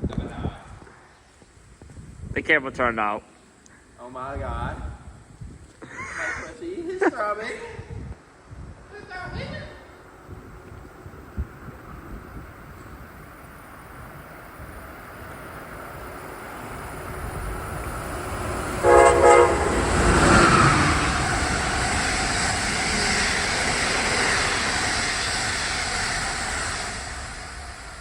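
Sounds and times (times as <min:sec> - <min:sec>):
freight train rumble: 0:07.8 - 0:28.0
train horn blasts: 0:18.8 - 0:21.1.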